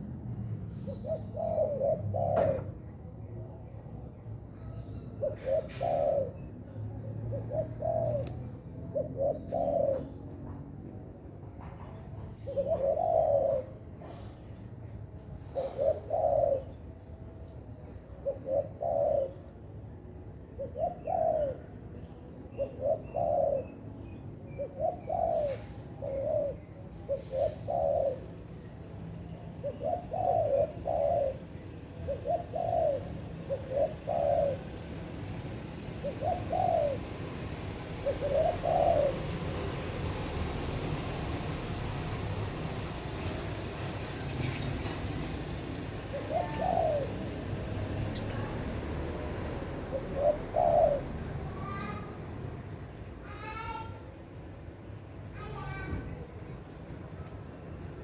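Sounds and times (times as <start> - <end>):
dove cooing: 0.7 - 2.8, 5.0 - 10.7, 12.3 - 14.3, 15.4 - 16.8, 18.1 - 19.7, 20.4 - 23.8, 24.5 - 28.5, 29.5 - 42.8, 45.8 - 52.2.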